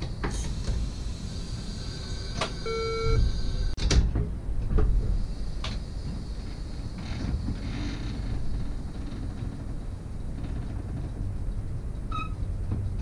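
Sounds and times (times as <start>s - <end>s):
train cab rumble: 0.0s - 13.0s
short electronic beep: 2.6s - 3.2s.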